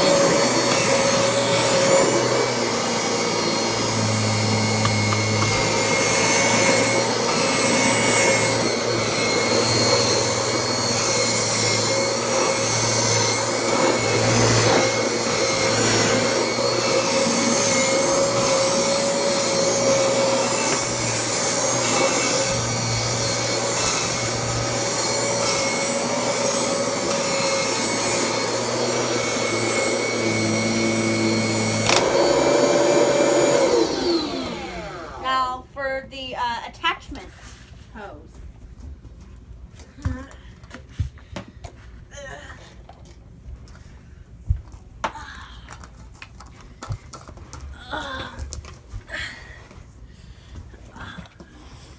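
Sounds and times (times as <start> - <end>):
vacuum cleaner running: 0.0 - 35.6.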